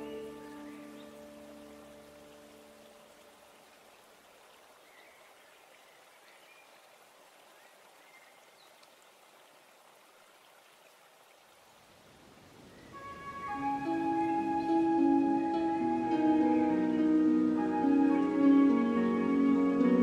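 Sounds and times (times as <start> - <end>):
background music: 0.0 - 2.8, 13.0 - 20.0
faint steady hiss: 0.0 - 20.0.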